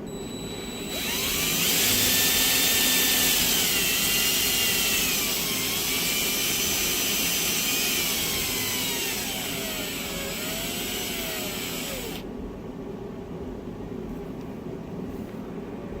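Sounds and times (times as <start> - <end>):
motor whine spinning down: 0.0 - 12.2.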